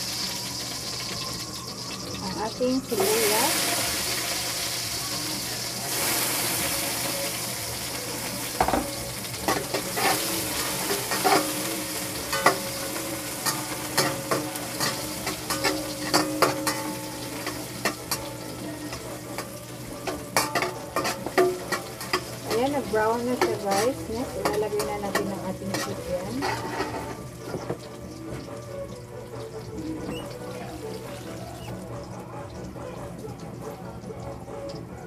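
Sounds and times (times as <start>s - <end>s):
onion and garlic sizzling: 0.0s - 35.0s
spatula scraping a pan: 5.8s - 27.9s.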